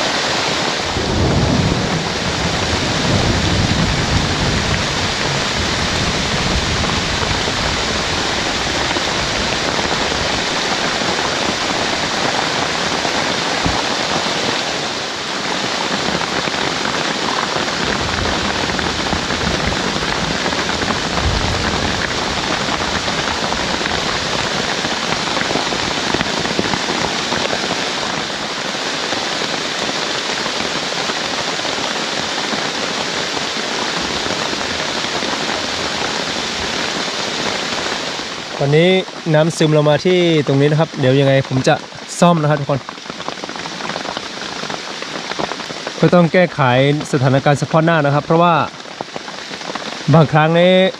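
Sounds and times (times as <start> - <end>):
heavy rain pouring: 0.0 - 50.9
low rumbles: 0.8 - 14.8, 17.8 - 26.8.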